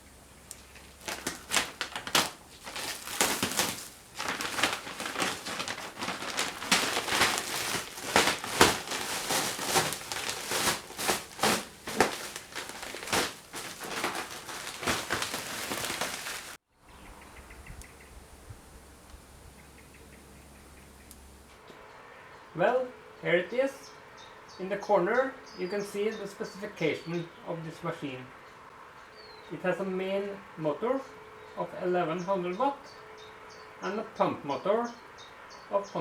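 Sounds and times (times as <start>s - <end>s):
packing material rustling and crinkling: 0.5s - 16.6s.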